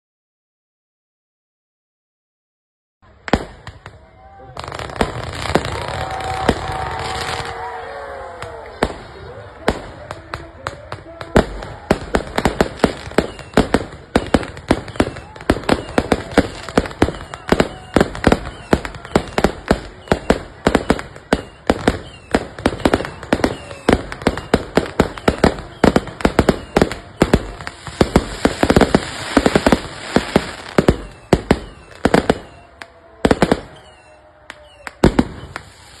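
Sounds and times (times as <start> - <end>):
fireworks bangs: 3.2 - 36.0
fireworks crackling: 3.2 - 36.0.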